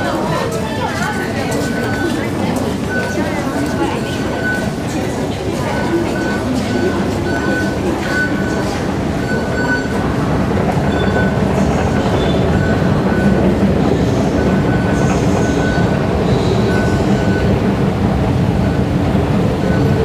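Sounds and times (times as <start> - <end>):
train rumble: 0.0 - 20.0
wheel squeals: 10.8 - 17.5.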